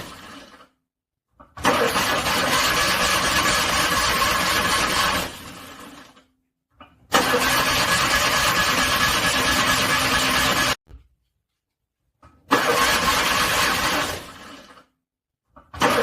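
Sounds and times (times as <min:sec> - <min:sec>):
car engine cranking: 0:01.6 - 0:05.2, 0:07.1 - 0:10.7, 0:12.5 - 0:14.4.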